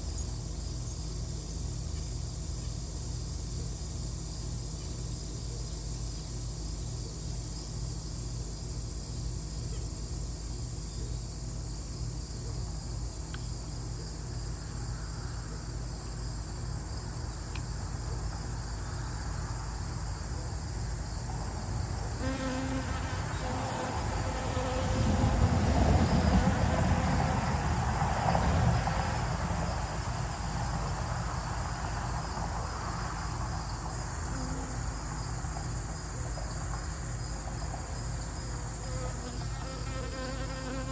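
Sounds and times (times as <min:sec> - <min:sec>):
crickets chirping: 0:00.0 - 0:40.9
low buzzing: 0:22.2 - 0:27.6, 0:28.4 - 0:29.4.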